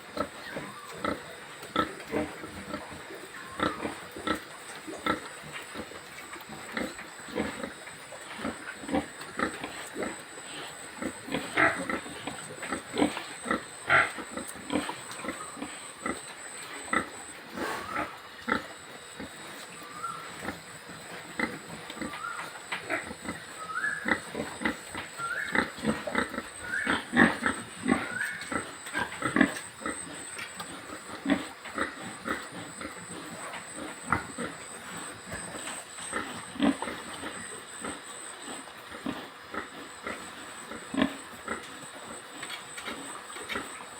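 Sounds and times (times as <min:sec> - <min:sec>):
pigs grunting: 0:00.0 - 0:43.9
pigs squealing: 0:00.0 - 0:43.9.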